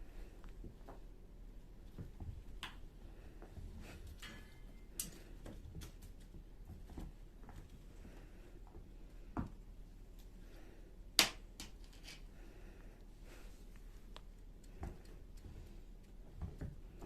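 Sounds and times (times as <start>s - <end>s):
light clicks and taps: 14.1s - 16.8s.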